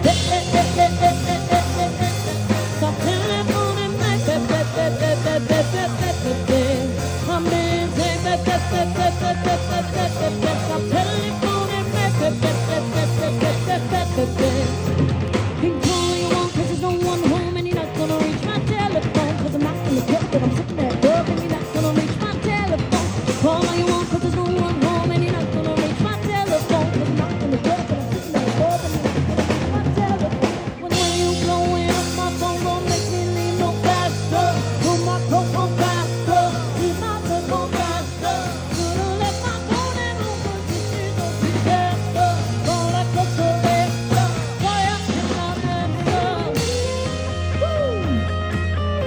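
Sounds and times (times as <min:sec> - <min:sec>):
bass line: 0:00.0 - 0:49.0
live band playing: 0:00.0 - 0:49.0
person singing: 0:00.0 - 0:49.0.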